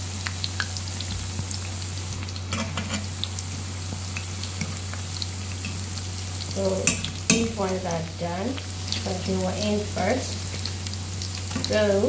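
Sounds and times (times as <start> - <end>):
oil crackles and pops: 0.0 - 9.4, 10.0 - 12.0
dough deep-frying in oil: 0.0 - 12.0.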